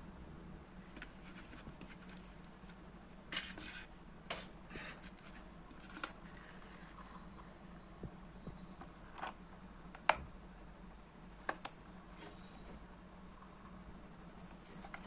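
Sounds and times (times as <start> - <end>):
low steady hum: 0.0 - 15.0
scratching and rustling handling: 0.8 - 7.6, 12.1 - 15.0.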